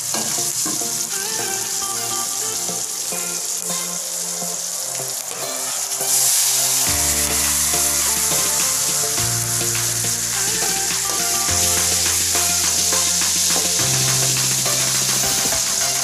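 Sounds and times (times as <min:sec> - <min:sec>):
background music with bass: 0:05.4 - 0:16.0.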